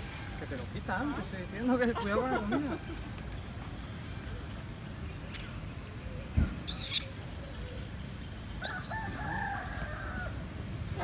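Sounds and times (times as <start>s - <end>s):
rooster crowing: 8.6s - 10.4s.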